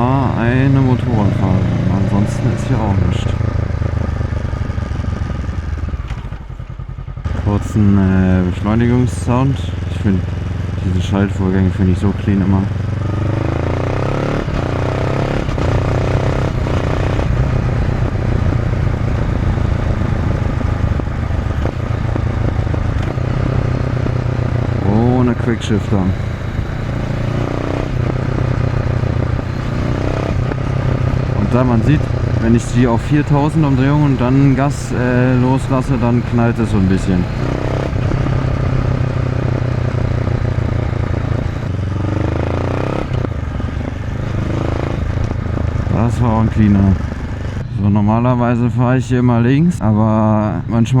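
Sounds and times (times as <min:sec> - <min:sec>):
motorcycle engine accelerating: 0:00.0 - 0:50.7
wind noise: 0:14.1 - 0:24.8.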